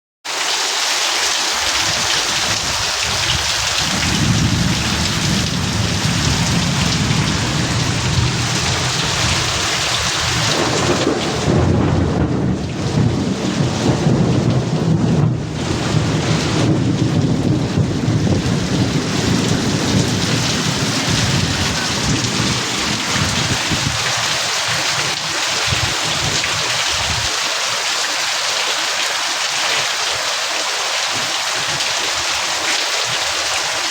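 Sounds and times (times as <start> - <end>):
heavy rain pouring: 0.3 - 33.9
low rumble of thunder: 1.8 - 27.3.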